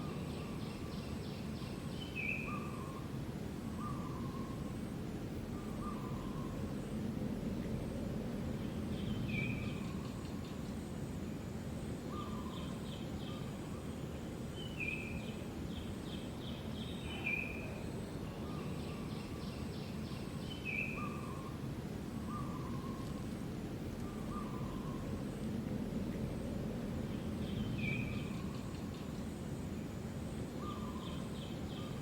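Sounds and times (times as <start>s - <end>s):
small birds chirping: 0.0s - 7.0s, 12.0s - 25.5s, 27.0s - 32.0s.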